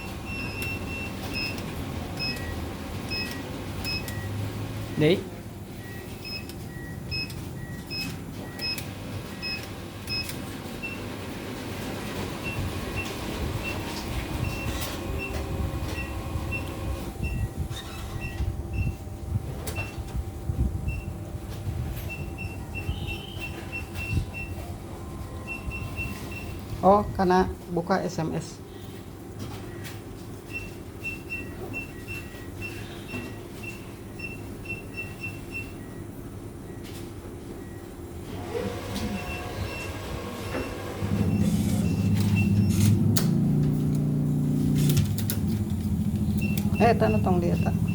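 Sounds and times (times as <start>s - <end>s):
mechanical running noise: 0.0s - 26.9s, 37.6s - 47.9s
low machine hum: 10.8s - 47.9s
two-tone electronic beeps: 22.1s - 24.6s, 41.1s - 42.9s, 46.2s - 47.9s.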